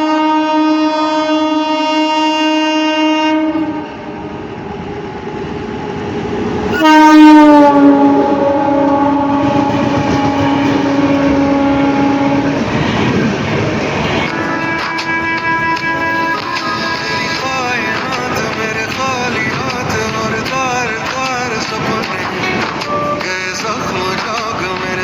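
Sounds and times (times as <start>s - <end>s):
train horn blasts: 0.0s - 4.4s, 6.7s - 18.5s, 22.2s - 23.7s
train running noise: 0.0s - 25.0s
wheels clattering on rails: 7.9s - 25.0s.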